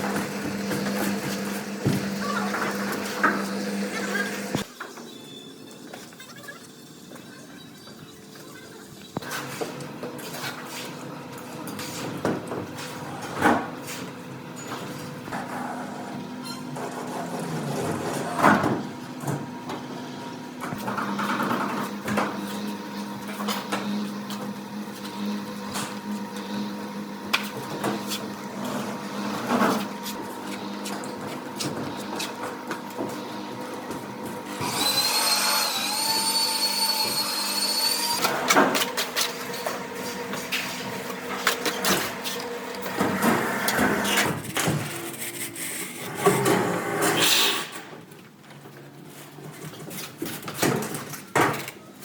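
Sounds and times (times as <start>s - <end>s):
power tool motor whining: 34.5s - 38.2s.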